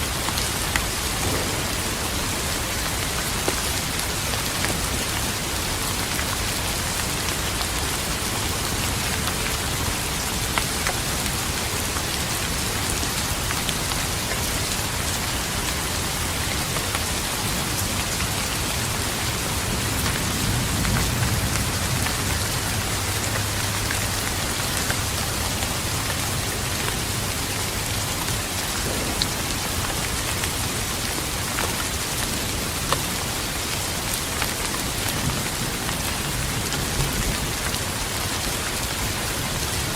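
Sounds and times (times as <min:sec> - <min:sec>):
steady rain falling: 0:00.0 - 0:39.9
raindrops ticking: 0:00.2 - 0:09.8
distant thunder rumble: 0:01.0 - 0:05.8, 0:28.7 - 0:31.2.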